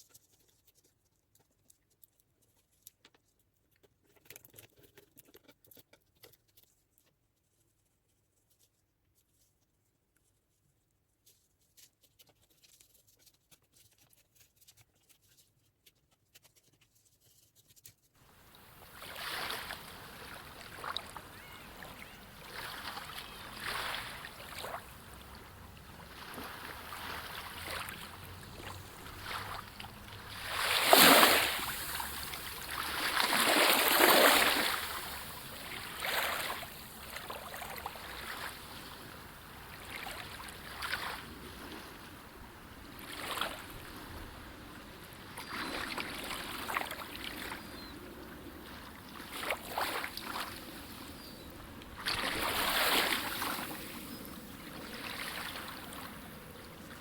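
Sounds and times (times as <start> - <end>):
sea waves washing in: 18.3 - 44.9, 51.9 - 57.0.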